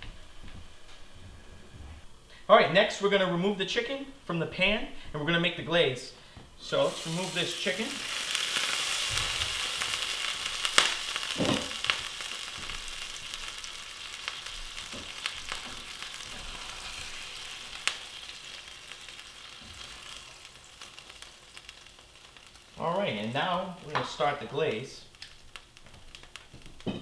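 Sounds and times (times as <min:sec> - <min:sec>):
chicken sizzling in oil: 0:06.7 - 0:27.0.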